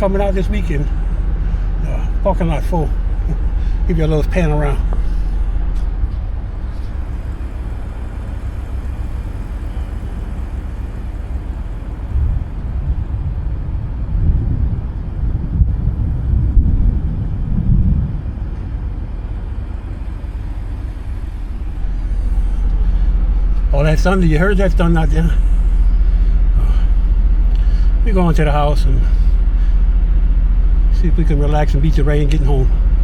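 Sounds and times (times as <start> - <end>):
steady low rumble: 0.0 - 33.0
thunder rolling: 12.0 - 19.1.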